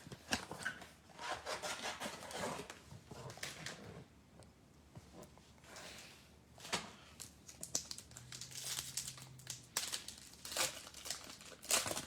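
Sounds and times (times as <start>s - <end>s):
card pack wrappers crinkling: 7.5s - 12.0s.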